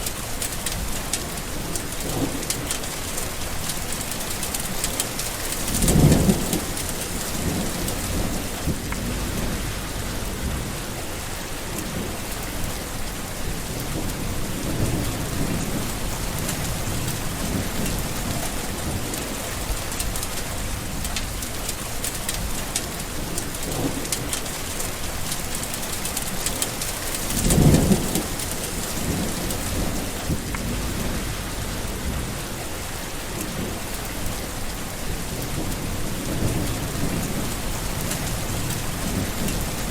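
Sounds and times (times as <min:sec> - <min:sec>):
steady rain: 0:00.0 - 0:39.9
thunder rolling: 0:05.4 - 0:12.7, 0:13.4 - 0:20.2, 0:27.0 - 0:39.9.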